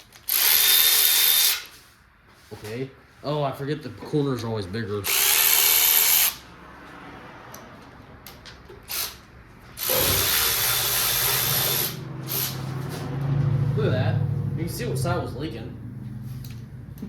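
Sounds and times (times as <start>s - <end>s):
handheld power tool running: 0.0s - 1.8s, 5.0s - 6.4s, 8.9s - 9.2s, 9.8s - 12.7s.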